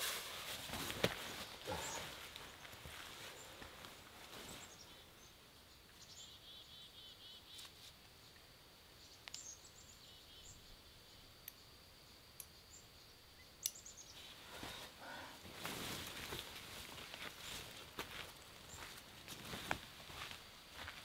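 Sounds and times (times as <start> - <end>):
rustling: 0.0 - 4.8, 14.2 - 20.1
small birds chirping: 1.0 - 15.4, 16.2 - 20.9.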